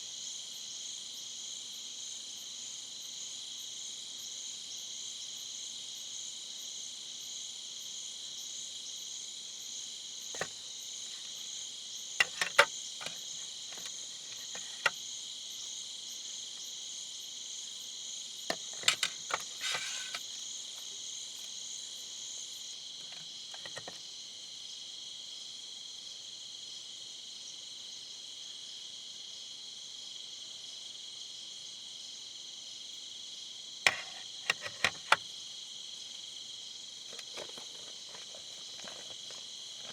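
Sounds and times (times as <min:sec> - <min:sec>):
insects trilling: 0:10.1 - 0:26.5, 0:31.5 - 0:39.9
short knocks and clicks: 0:12.2 - 0:14.9.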